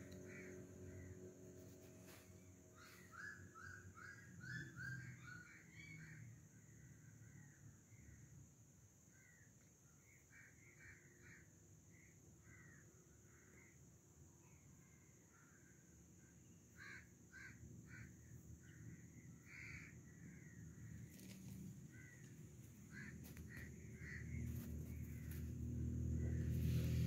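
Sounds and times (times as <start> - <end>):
bird calls: 1.8 - 8.2, 14.5 - 27.0.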